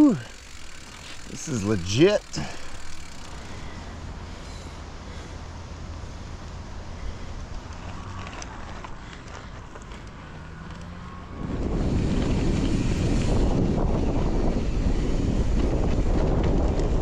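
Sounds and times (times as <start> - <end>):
small clicks and rattles: 0.0 - 3.8
wind rushing over microphone: 11.2 - 17.0.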